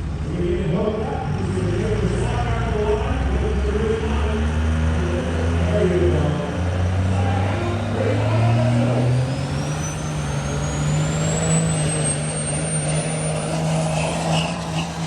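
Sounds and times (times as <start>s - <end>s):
diesel truck engine straining: 0.0s - 15.0s
turbocharger whistle: 7.1s - 15.0s.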